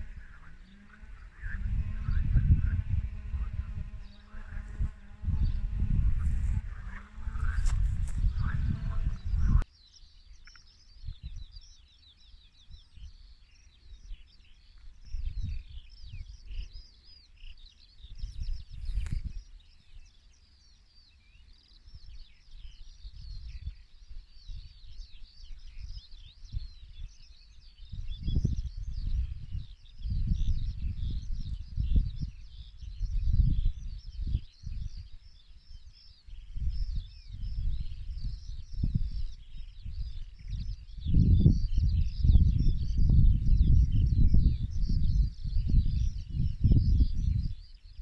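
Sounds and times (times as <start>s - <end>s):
loud buzz: 0.0s - 9.6s
wind rumble on microphone: 0.0s - 9.7s, 10.3s - 17.3s, 18.0s - 20.1s, 21.9s - 48.0s
small birds chirping: 0.0s - 48.0s.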